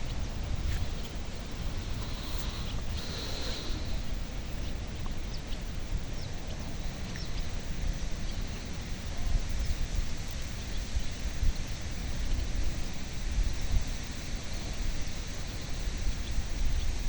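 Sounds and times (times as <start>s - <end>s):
faint bird chirps: 0.0s - 9.8s
wind buffeting microphone: 0.0s - 17.0s.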